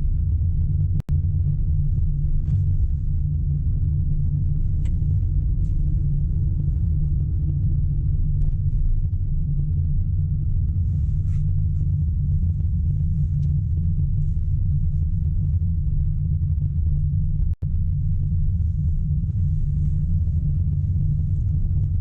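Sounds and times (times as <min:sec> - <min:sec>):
car road and engine rumble: 0:01.2 - 0:22.0.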